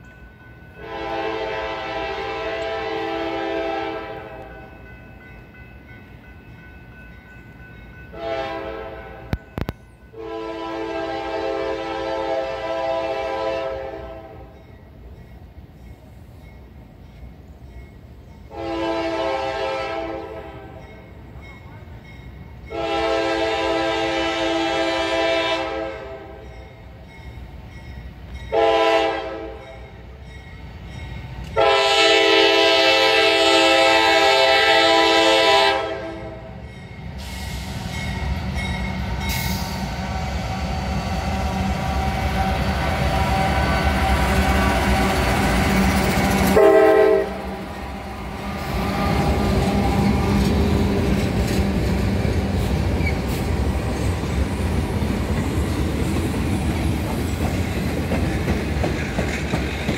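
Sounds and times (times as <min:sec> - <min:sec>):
locomotive horn blasts: 0:00.8 - 0:04.6, 0:08.1 - 0:09.6, 0:10.2 - 0:14.5, 0:18.5 - 0:20.8, 0:22.7 - 0:26.4, 0:28.5 - 0:29.9, 0:31.6 - 0:36.6, 0:46.4 - 0:50.0
locomotive engine rumble: 0:36.1 - 0:59.9
train wheels clattering on rails: 0:36.6 - 0:59.9.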